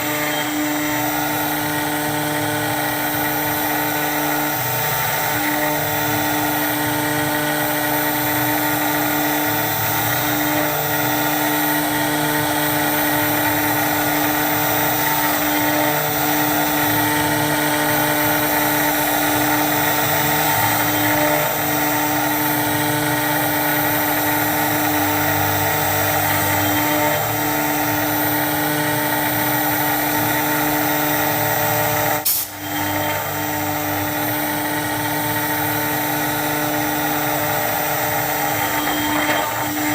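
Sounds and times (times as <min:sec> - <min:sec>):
router spindle whine: 0:00.0 - 0:39.9
hiss of cutting plastic: 0:32.1 - 0:33.2.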